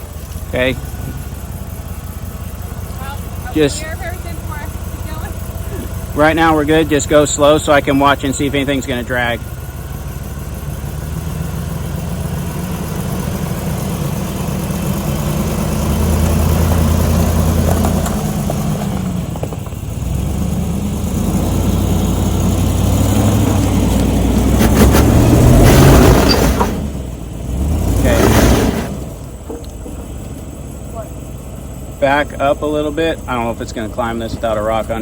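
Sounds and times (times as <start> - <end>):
engine revving under load: 0.0 - 35.0
tyres grinding over rock: 15.8 - 19.9, 23.1 - 27.0.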